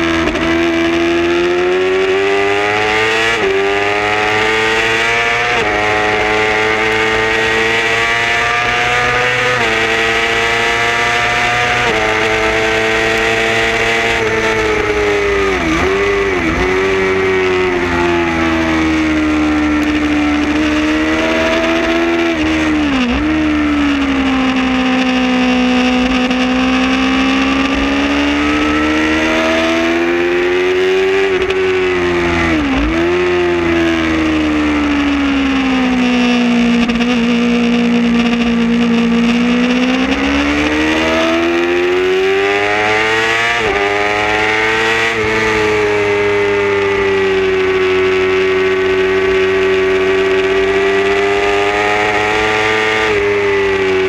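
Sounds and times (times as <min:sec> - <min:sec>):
motorcycle engine at high revs: 0:00.0 - 0:54.0
wind and road noise: 0:00.0 - 0:54.0.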